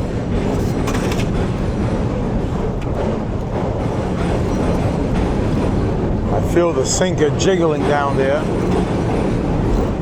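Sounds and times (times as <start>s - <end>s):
outboard motor running: 0.4s - 10.0s.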